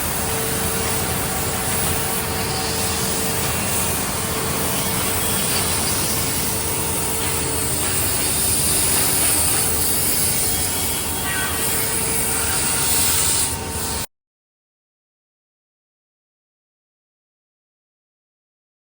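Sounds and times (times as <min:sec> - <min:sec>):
milling machine cutting wood: 0:00.0 - 0:14.0.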